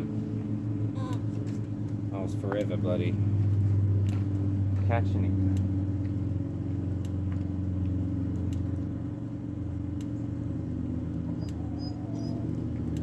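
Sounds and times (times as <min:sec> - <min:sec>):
low mechanical hum: 0:00.0 - 0:13.0
electric fence energiser clicks: 0:07.0 - 0:08.8, 0:09.9 - 0:10.3.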